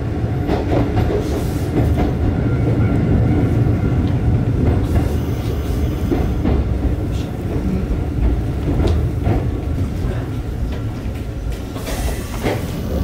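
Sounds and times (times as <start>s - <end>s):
train wheel rumble: 0.0s - 13.0s.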